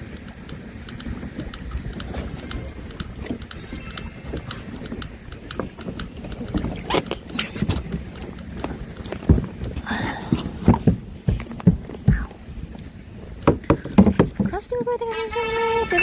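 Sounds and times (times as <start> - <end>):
light clicks: 0.0 - 10.5
wind rumbling on microphone: 0.0 - 16.0
knocks and thumps from rowboat: 4.7 - 16.0.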